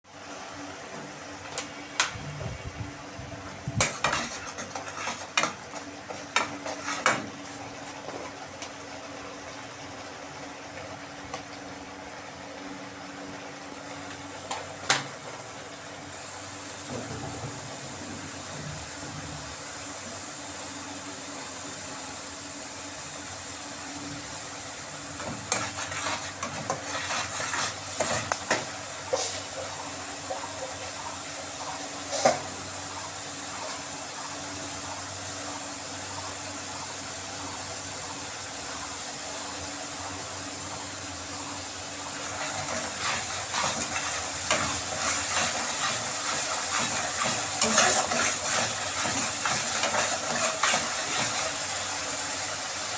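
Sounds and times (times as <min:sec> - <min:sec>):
food sizzling in a pot: 0:03.6 - 0:08.8, 0:12.7 - 0:16.9, 0:17.7 - 0:52.9
spatula scraping a pot: 0:03.8 - 0:07.3, 0:25.2 - 0:29.5, 0:42.2 - 0:51.8.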